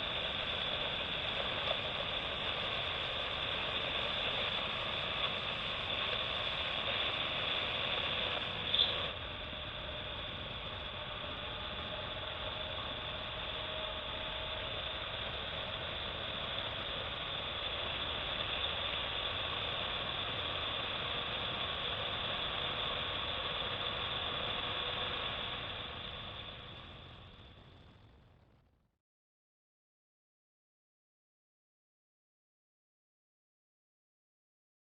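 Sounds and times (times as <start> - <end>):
motorcycle engine running: 0.0 - 28.8.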